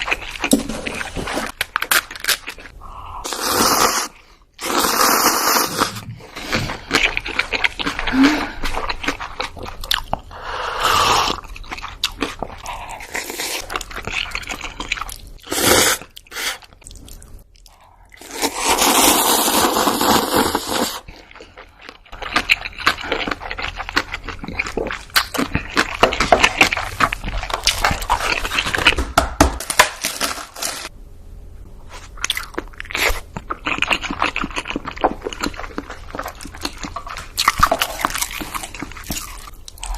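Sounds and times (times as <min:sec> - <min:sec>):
crunchy food being chewed: 0:05.7 - 0:10.3, 0:11.2 - 0:29.0, 0:31.9 - 0:39.9.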